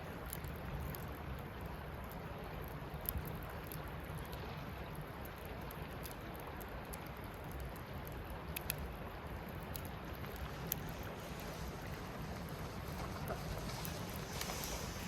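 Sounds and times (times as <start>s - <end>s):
campfire flame rushing: 0.0s - 15.0s
fire crackles and pops: 0.0s - 15.0s.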